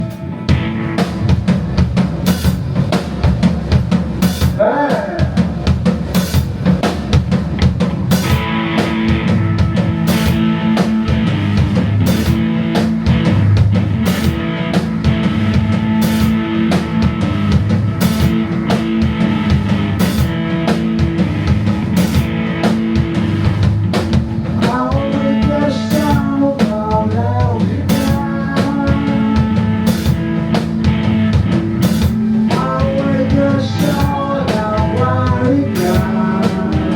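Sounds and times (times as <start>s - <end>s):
bass and electric guitar: 0.0s - 36.9s
drum kit beat: 0.0s - 36.9s.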